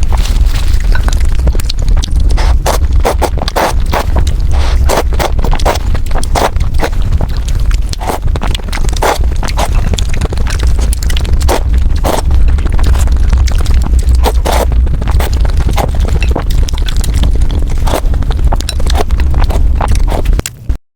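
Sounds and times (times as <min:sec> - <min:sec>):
steady low rumble: 0:00.0 - 0:20.8
wet chewing and slurping: 0:00.0 - 0:20.8.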